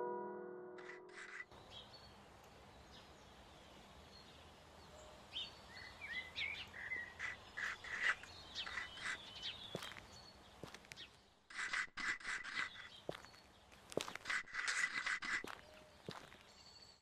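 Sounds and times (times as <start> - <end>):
small birds chirping: 1.2 - 17.0
footstep on paving stones: 7.6 - 16.8.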